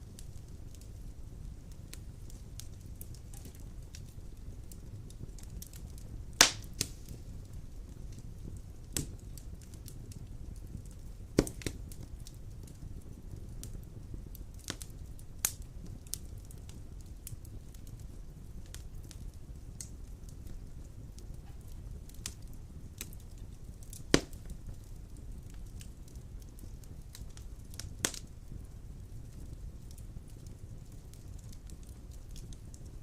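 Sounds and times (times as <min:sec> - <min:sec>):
fire crackles and pops: 0:00.0 - 0:33.0
fire flames rumbling: 0:00.0 - 0:33.0.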